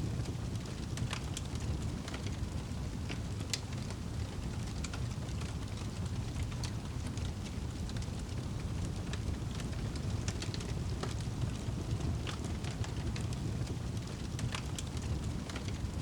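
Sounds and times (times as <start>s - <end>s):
fire crackling and popping: 0.0s - 16.0s
rumble of fire flames: 0.0s - 16.0s.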